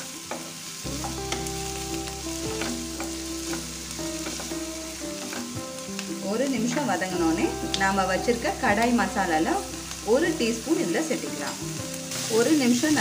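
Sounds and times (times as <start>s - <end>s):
vegetables sizzling in a frying pan: 0.0s - 13.0s
spatula scraping and tapping pan: 2.5s - 6.1s.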